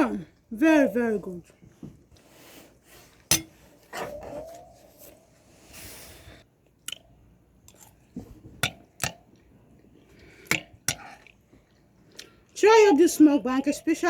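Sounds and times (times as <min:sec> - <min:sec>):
person chewing food: 0:06.6 - 0:12.6.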